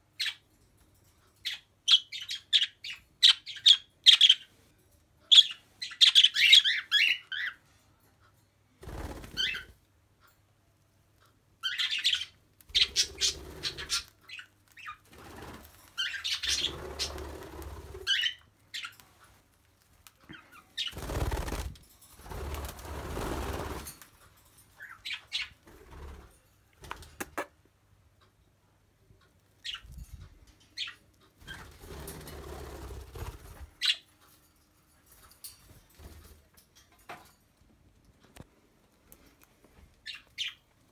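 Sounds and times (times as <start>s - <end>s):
wing flapping and rustling: 8.8s - 9.8s, 14.7s - 18.3s, 20.8s - 24.2s, 31.4s - 33.9s
birds chirping: 11.6s - 19.0s.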